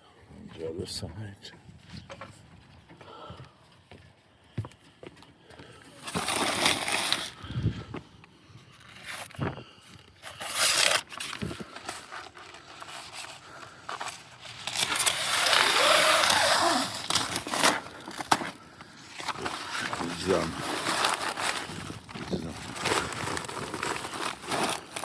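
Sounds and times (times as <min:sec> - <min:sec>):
sandpaper scraping: 0:06.0 - 0:07.4, 0:14.0 - 0:18.3.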